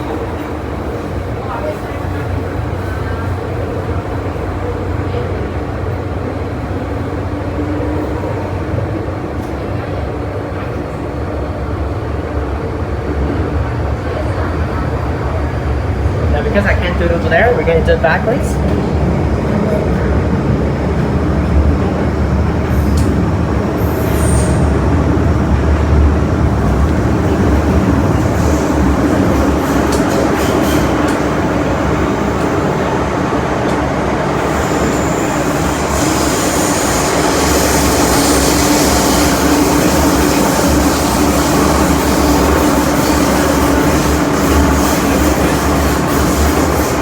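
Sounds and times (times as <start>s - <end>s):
train wheels rumbling on track: 0.0s - 47.0s.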